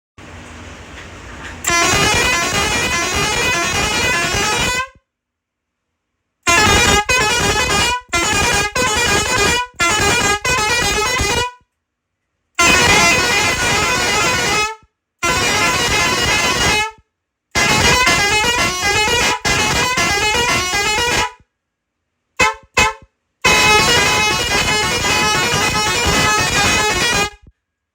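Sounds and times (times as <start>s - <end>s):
truck pressure horn blasts: 1.6s - 5.0s, 6.5s - 11.6s, 12.6s - 17.0s, 17.6s - 21.4s, 22.4s - 27.5s.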